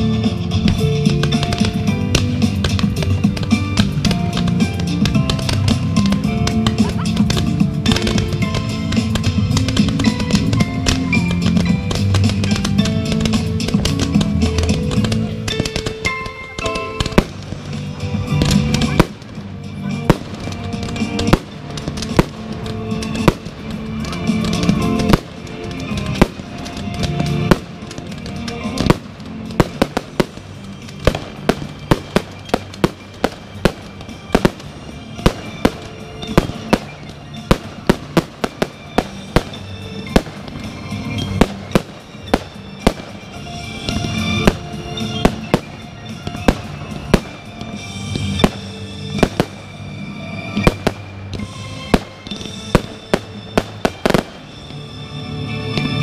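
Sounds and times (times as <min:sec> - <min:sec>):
firework shells bursting: 0:00.0 - 0:54.6
music: 0:00.0 - 0:56.0.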